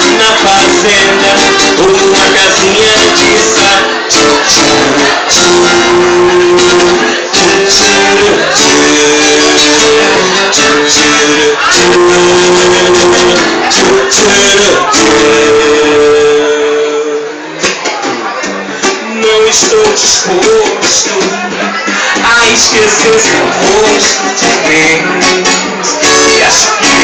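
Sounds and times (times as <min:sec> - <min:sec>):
guitar: 0:00.0 - 0:27.0
live band music: 0:00.0 - 0:27.0.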